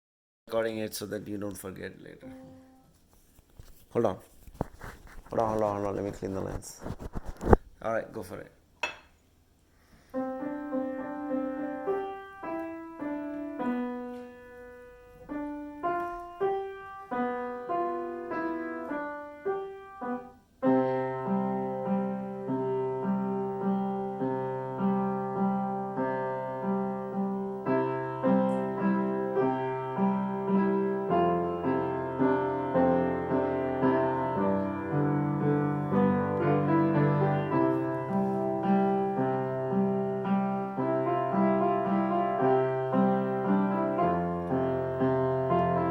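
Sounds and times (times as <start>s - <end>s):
solo piano: 2.2s - 2.9s, 10.1s - 45.9s.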